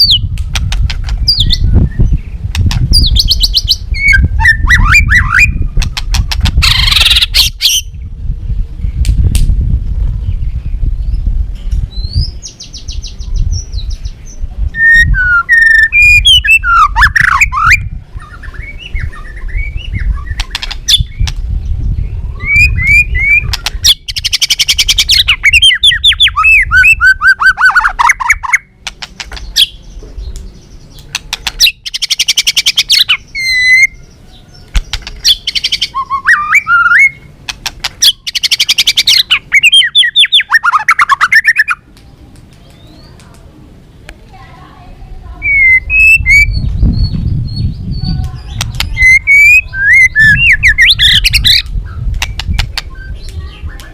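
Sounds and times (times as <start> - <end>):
bird singing whistled song: 0.0 - 0.3, 1.2 - 8.1, 11.9 - 28.7, 29.4 - 37.3, 38.0 - 41.8, 45.4 - 53.9
low rumble: 21.0 - 23.2.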